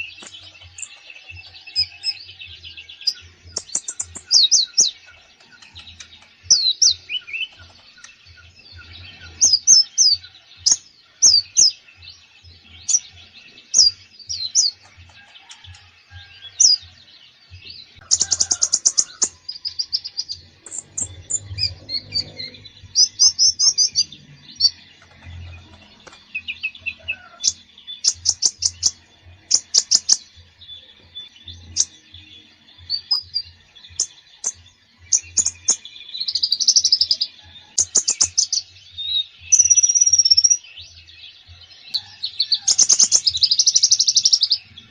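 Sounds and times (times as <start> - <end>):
sunbird singing: 0.0 - 44.9.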